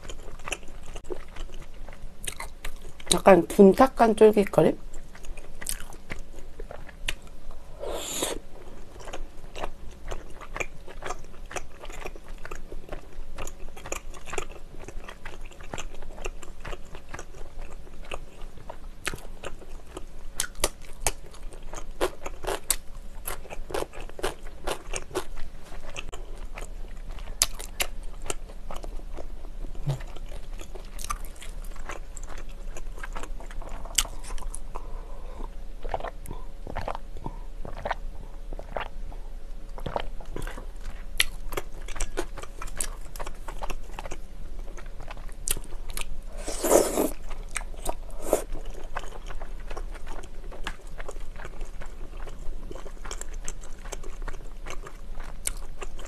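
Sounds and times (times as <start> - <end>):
wet chewing: 37.6 - 38.9.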